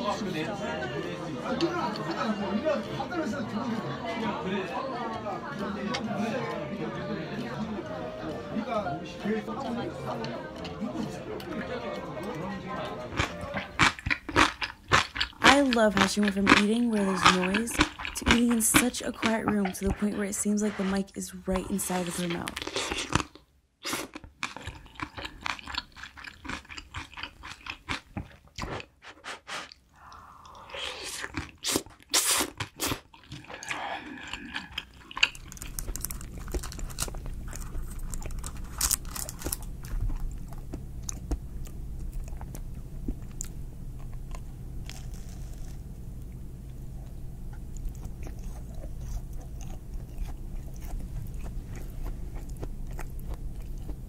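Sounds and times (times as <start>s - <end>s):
wet chewing and smacking: 10.1s - 29.0s, 30.4s - 54.0s
steady low hum: 33.4s - 54.0s.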